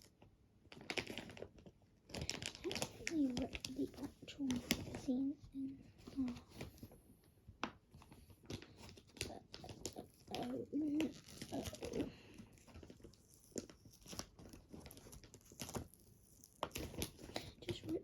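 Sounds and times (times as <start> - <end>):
magazine paper tearing and crinkling: 8.4 - 18.0.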